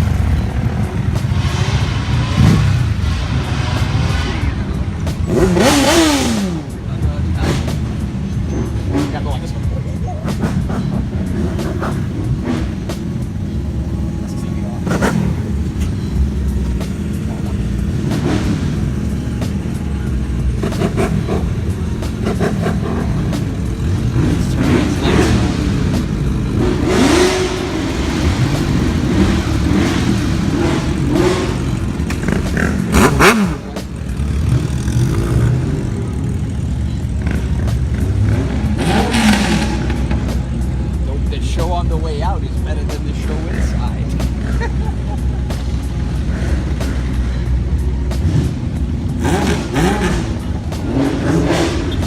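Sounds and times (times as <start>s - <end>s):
background music: 0.0s - 52.0s
low engine rumble: 0.0s - 52.0s
engine revving in quick blips: 20.6s - 36.2s, 37.2s - 42.0s.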